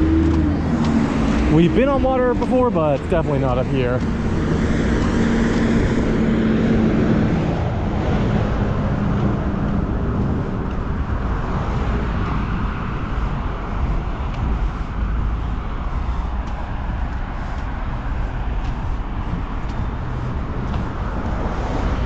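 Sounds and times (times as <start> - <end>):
tyre and road noise: 0.0 - 22.0
vehicle passing close by: 0.0 - 22.0.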